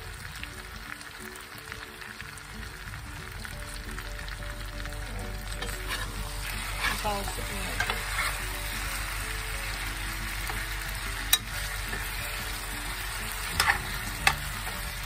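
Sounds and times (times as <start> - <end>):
potatoes sizzling in oil: 0.0 - 15.0
spatula scraping a pan: 5.6 - 15.0.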